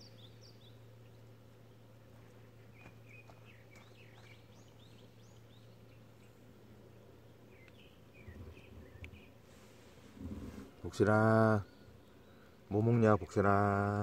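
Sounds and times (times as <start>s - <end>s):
small birds chirping: 0.0s - 14.0s
steady low hum: 0.0s - 14.0s.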